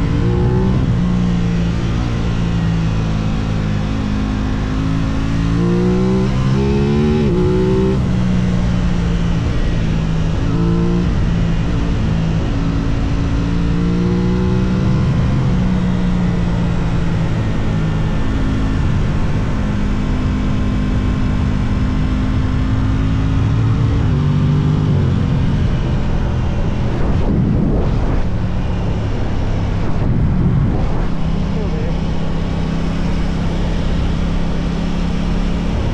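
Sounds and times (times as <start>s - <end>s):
motorcycle engine accelerating: 0.0s - 35.9s
wind noise: 23.3s - 35.9s.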